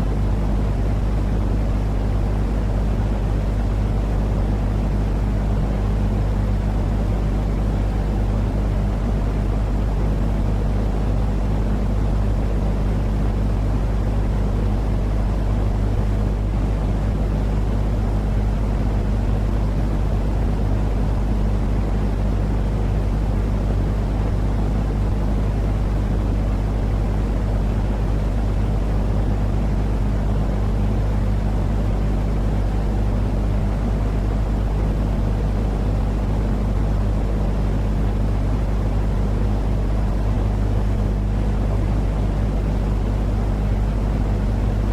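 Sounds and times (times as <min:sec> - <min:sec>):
low rumbling noise with hum: 0:00.0 - 0:44.9.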